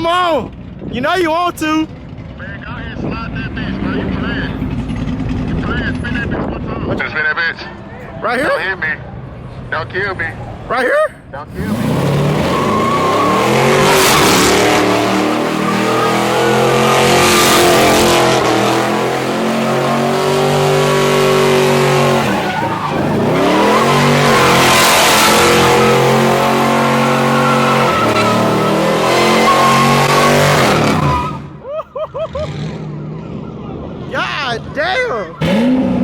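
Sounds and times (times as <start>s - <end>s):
tires squealing: 0.0s - 9.1s, 11.4s - 36.0s
car engine at high revs: 11.5s - 31.5s, 35.3s - 36.0s.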